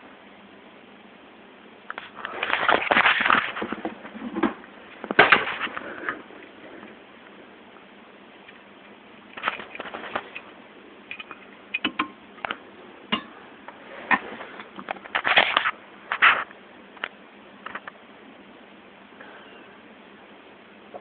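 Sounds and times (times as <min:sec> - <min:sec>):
scratchy rustles: 0:02.0 - 0:04.4, 0:09.4 - 0:10.5, 0:13.8 - 0:16.6.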